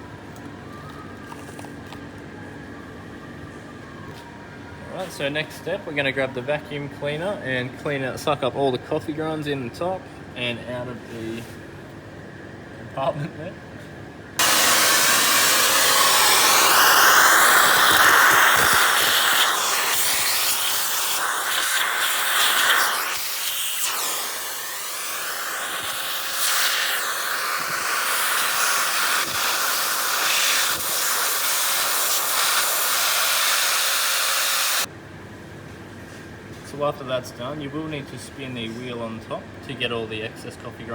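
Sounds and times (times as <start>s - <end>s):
vacuum cleaner whine: 14.4s - 34.9s.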